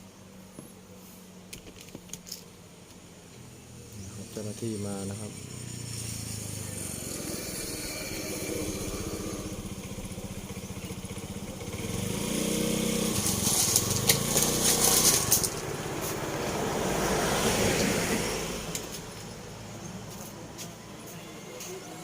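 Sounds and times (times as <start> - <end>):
small vehicle engine running: 3.6 - 20.8.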